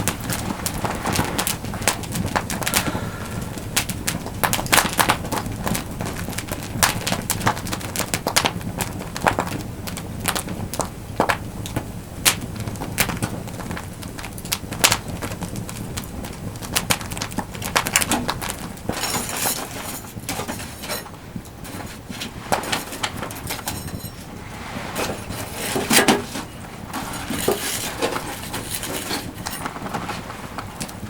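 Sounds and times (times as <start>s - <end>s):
low rumble: 0.0s - 5.0s
campfire crackling and popping: 0.0s - 24.4s, 29.3s - 31.0s.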